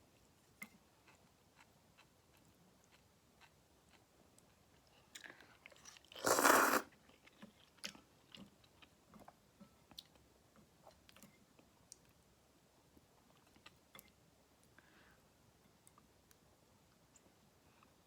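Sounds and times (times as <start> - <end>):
person slurping noodles: 6.2 - 6.9.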